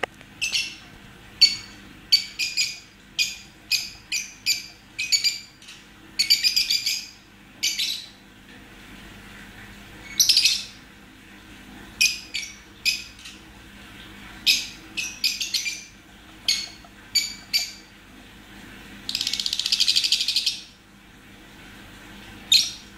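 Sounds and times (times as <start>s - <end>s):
lovebirds chirping: 14.4s - 17.9s, 19.1s - 20.7s
lovebirds chattering: 14.5s - 17.9s, 19.1s - 20.7s.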